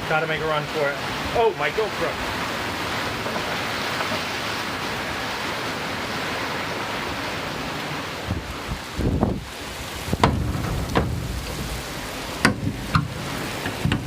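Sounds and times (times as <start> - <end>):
heavy rain pouring: 0.0 - 14.0
low thumps: 10.0 - 14.0.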